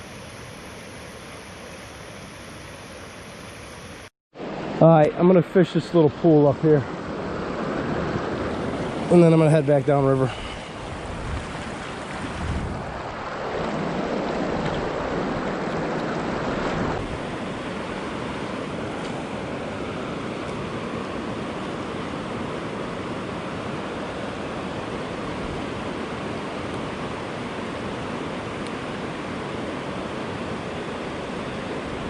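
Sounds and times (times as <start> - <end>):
river water rushing: 0.0 - 32.0
wind on microphone: 10.0 - 18.9.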